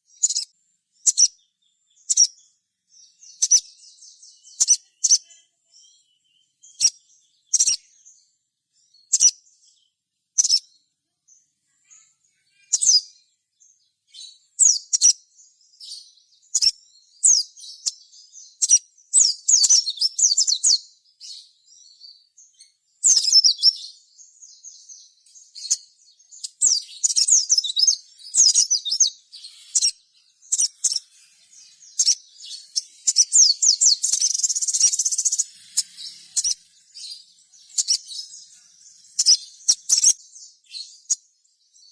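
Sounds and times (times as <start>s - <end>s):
bird chirping and rattling: 26.4s - 40.9s.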